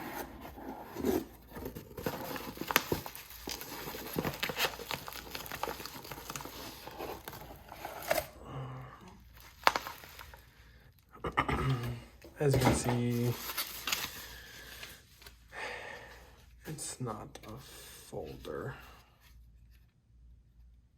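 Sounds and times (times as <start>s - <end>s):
cardboard crinkling and rustling: 0.0s - 8.4s, 9.2s - 10.6s, 12.2s - 15.4s.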